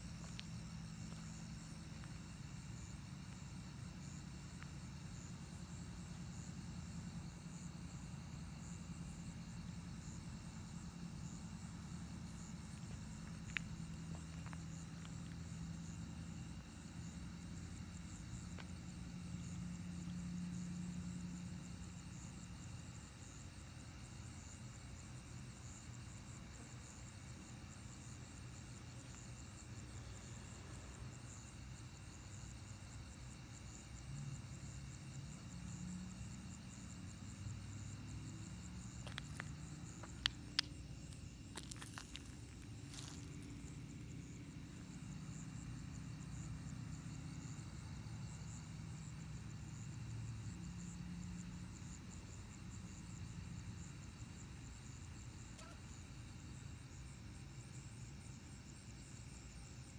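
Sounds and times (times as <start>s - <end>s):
night insects trilling: 0.0s - 59.9s.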